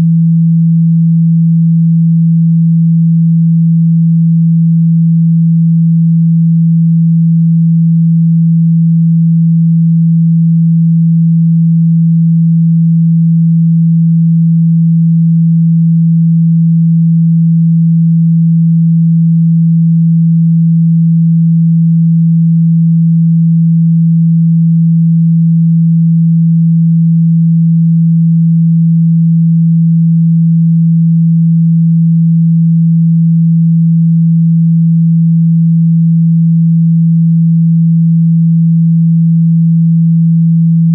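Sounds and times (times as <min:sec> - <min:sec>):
low steady sine tone: 0:00.0 - 0:40.9.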